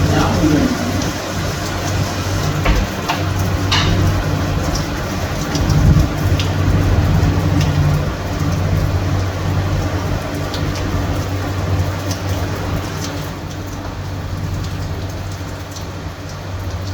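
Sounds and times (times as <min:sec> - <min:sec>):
low hum: 0:00.0 - 0:01.7
heavy rain hissing: 0:00.0 - 0:14.6.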